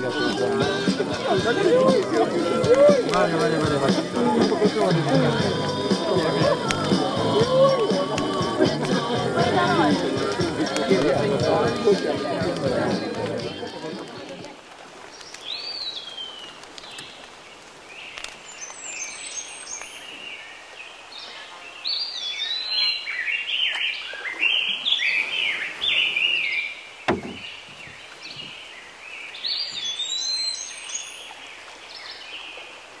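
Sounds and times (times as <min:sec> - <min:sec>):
songbirds chirping and trilling: 0:09.8 - 0:33.0.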